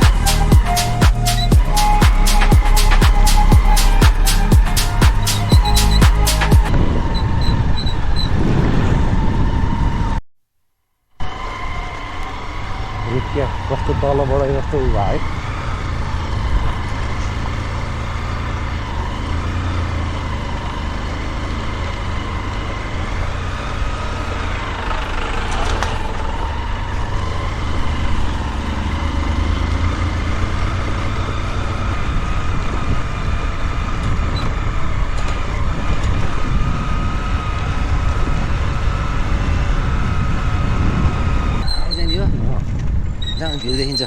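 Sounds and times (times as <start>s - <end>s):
vehicle engine running: 0.0s - 7.6s, 14.6s - 41.6s.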